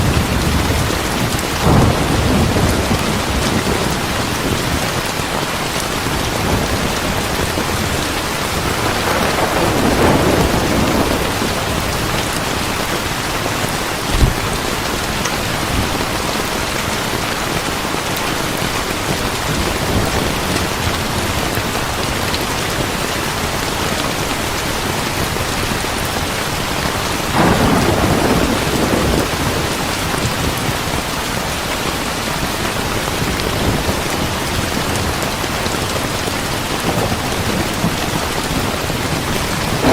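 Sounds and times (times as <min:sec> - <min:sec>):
thunder rolling: 0:00.0 - 0:05.3, 0:06.3 - 0:16.4, 0:27.2 - 0:30.8, 0:36.9 - 0:39.9
heavy rain falling: 0:00.0 - 0:39.9
sharp low thump: 0:14.1 - 0:14.5.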